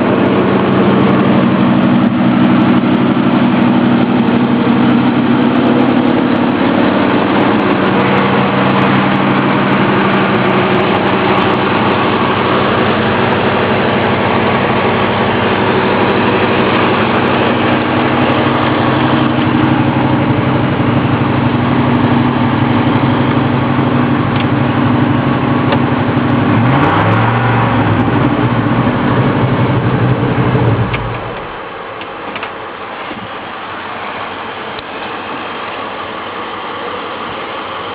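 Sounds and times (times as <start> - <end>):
pickup engine idling and revving: 0.0 - 37.9.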